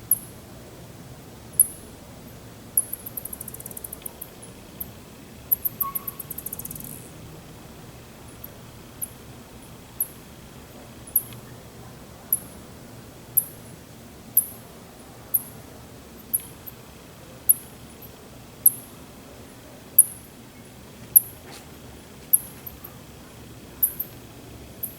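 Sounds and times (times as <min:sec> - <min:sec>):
bat chirping: 0:05.5 - 0:07.0.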